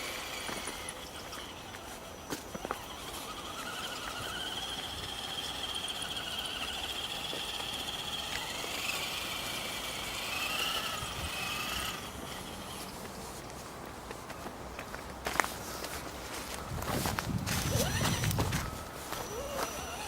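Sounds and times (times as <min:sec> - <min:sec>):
electric motor whining: 0:00.0 - 0:13.0, 0:17.4 - 0:20.0.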